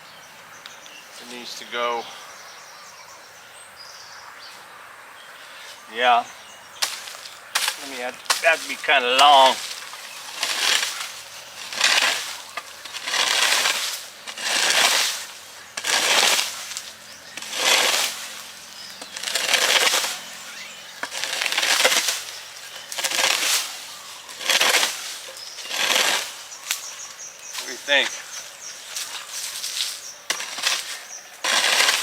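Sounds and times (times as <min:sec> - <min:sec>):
digging tool chopping soil: 0:06.8 - 0:27.0, 0:28.9 - 0:32.0.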